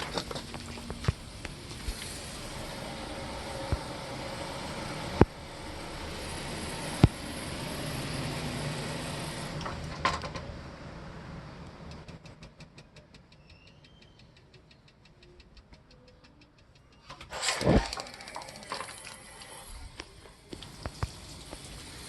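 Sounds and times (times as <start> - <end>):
rush of burner noise: 0.0 - 11.4, 17.3 - 22.0.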